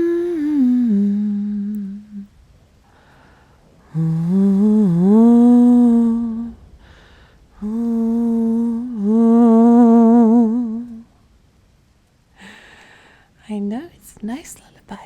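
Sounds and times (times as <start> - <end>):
woman humming a lullaby: 0.0 - 2.3, 3.8 - 6.6, 7.6 - 11.1.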